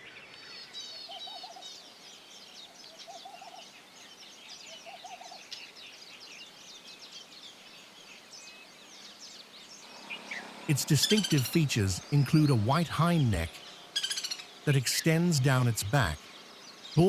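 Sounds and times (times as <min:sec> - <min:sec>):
birds chirping and trilling: 0:00.0 - 0:17.0
low hooting bird call: 0:09.8 - 0:17.0.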